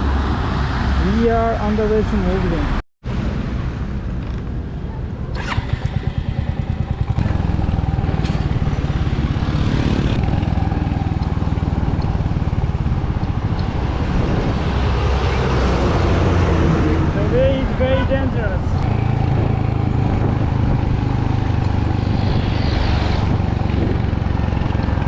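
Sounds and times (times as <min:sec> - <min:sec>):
wind and road noise: 0:00.0 - 0:25.0
motorcycle engine running: 0:05.2 - 0:15.5, 0:18.8 - 0:25.0.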